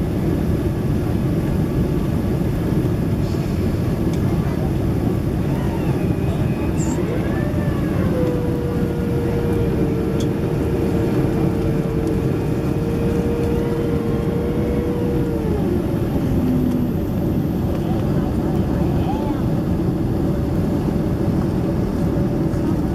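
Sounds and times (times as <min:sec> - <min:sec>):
airliner cabin noise: 0:00.0 - 0:22.9
steady tone: 0:06.7 - 0:17.7.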